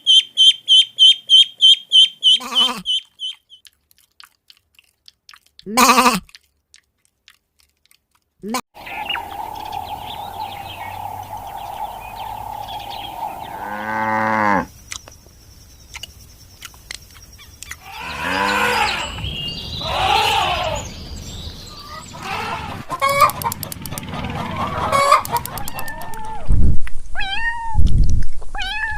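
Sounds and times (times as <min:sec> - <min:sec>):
birds chirping: 0:00.0 - 0:03.6, 0:08.8 - 0:26.2
steady hum: 0:08.8 - 0:13.8
hens clucking: 0:08.8 - 0:14.6, 0:21.8 - 0:26.4
rooster crowing: 0:08.8 - 0:14.6.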